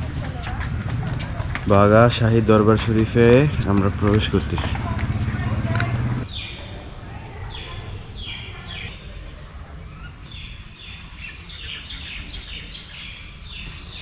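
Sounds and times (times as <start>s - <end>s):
steady low rumble: 0.0s - 6.3s
birds calling with falling notes: 1.6s - 14.0s.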